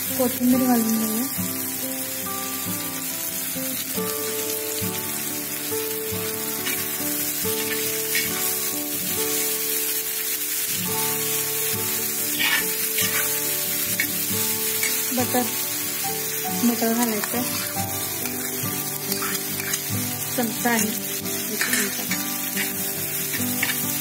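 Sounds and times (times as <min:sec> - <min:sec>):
masala sizzling on a pan: 0:00.0 - 0:24.0
soft instrumental music: 0:00.0 - 0:24.0
metal spatula scraping: 0:06.6 - 0:08.7, 0:12.0 - 0:24.0.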